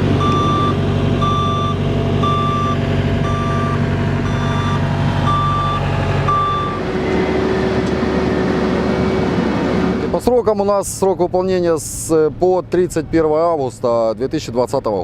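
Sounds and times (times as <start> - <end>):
diesel engine drone: 0.0 - 15.0
reversing alarm beeping: 0.2 - 6.8.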